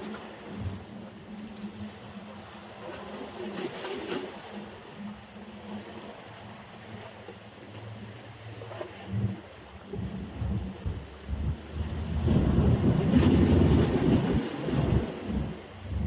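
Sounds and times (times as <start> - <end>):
surf on sandy beach: 0.0 - 4.8, 8.6 - 16.0
wind on microphone: 8.7 - 16.0.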